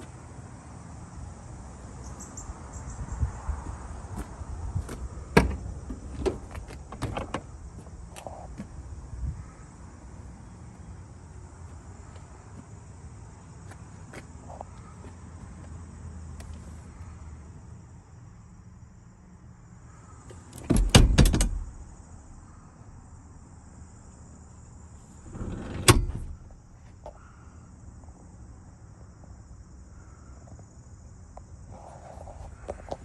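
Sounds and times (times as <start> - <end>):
truck door slam: 4.2 - 7.8, 20.6 - 22.5, 25.1 - 26.6
door latch clicks and rattles: 5.3 - 7.6, 20.6 - 21.9, 25.2 - 26.5.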